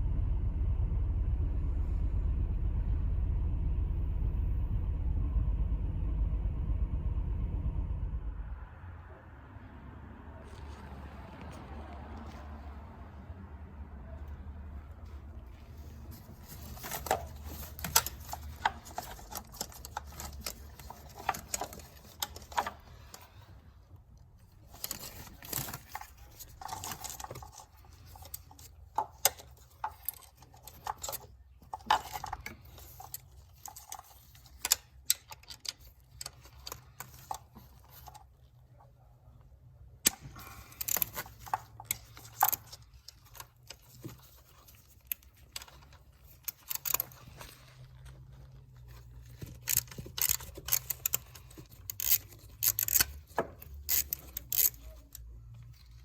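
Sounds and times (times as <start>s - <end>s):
low steady hum: 0.0s - 56.0s
clicks and clatter of objects handled: 15.8s - 23.6s, 24.2s - 39.4s, 40.0s - 56.0s.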